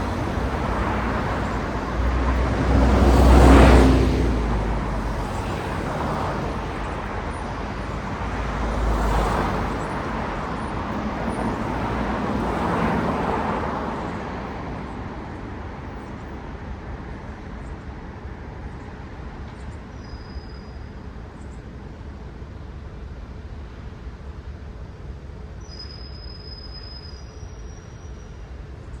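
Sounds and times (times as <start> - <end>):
car passing by: 0.0 - 16.0
distant traffic hum: 0.0 - 29.0.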